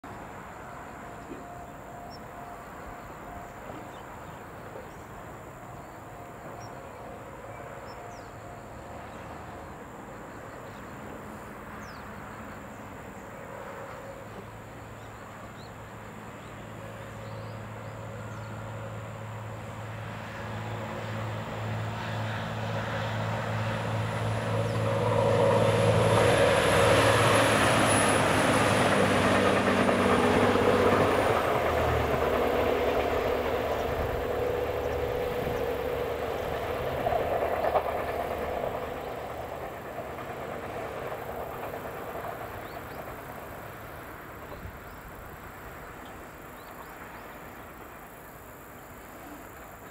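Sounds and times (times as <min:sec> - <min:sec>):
wheel and rail noise: 0:00.1 - 0:49.9
diesel engine drone: 0:17.3 - 0:45.8.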